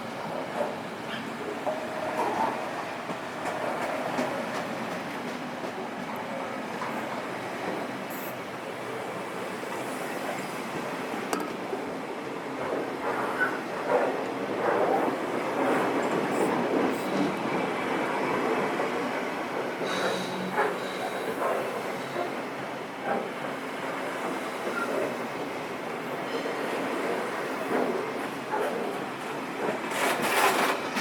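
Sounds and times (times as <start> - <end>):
train wheels clattering on rails: 0.0 - 31.0
high wheel squeal: 19.8 - 22.2.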